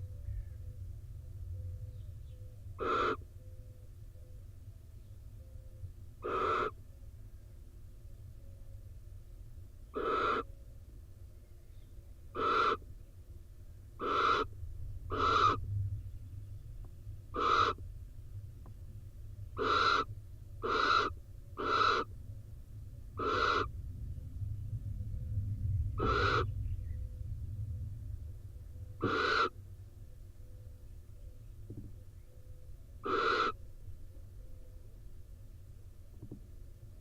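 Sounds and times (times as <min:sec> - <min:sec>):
low rumble: 0:00.0 - 0:06.2, 0:06.8 - 0:37.0
barn owl hissing calls: 0:02.8 - 0:03.3, 0:06.2 - 0:06.8, 0:09.9 - 0:10.5, 0:12.3 - 0:12.9, 0:14.0 - 0:15.6, 0:17.3 - 0:17.8, 0:19.6 - 0:22.1, 0:23.2 - 0:23.7, 0:25.9 - 0:26.5, 0:28.9 - 0:29.6, 0:33.0 - 0:33.7.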